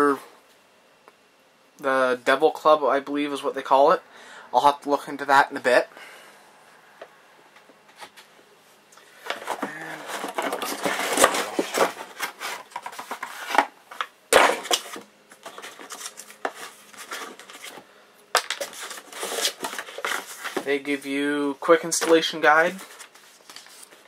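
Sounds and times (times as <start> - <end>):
cardboard and paper rustling: 9.1 - 21.0, 21.6 - 24.0.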